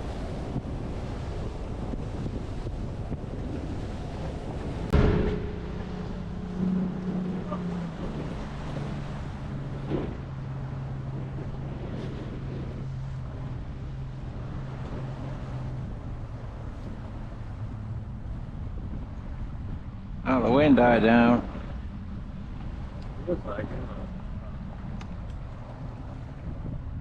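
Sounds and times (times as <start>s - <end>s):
boat motor running: 0.0s - 27.0s
waves washing: 0.0s - 27.0s
wind noise on microphone: 0.0s - 27.0s
sharp thump: 4.9s - 8.3s.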